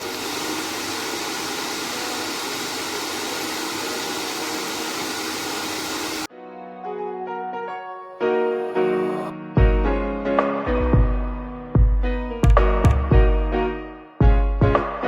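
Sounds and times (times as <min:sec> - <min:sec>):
hair dryer running: 0:00.0 - 0:06.3
soft piano music: 0:06.3 - 0:15.0.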